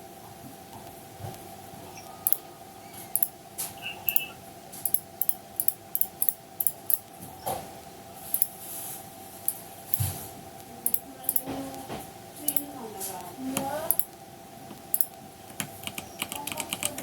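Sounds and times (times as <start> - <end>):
faint steady hum: 0.0 - 17.0
mouse and keyboard clicks: 3.1 - 7.0, 8.3 - 8.5, 10.8 - 11.5, 13.6 - 14.1, 14.7 - 17.0.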